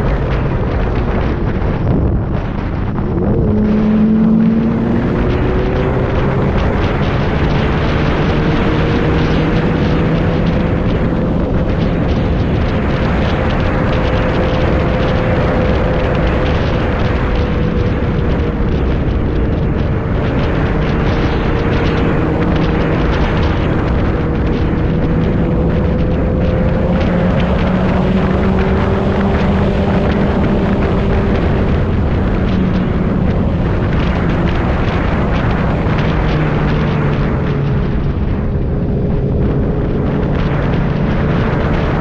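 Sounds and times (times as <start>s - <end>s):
motorcycle engine cruising: 0.0s - 42.0s
rush of wind: 0.0s - 42.0s.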